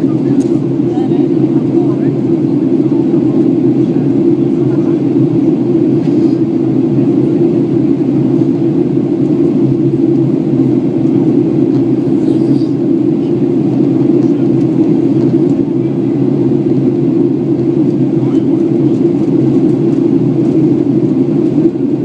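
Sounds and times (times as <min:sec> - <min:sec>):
jet engine drone: 0:00.0 - 0:22.0.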